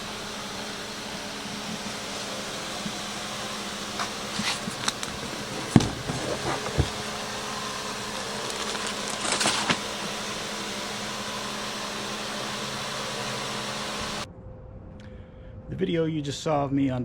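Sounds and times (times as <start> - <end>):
steady hum: 0.0 - 15.7
rustling: 2.8 - 10.2.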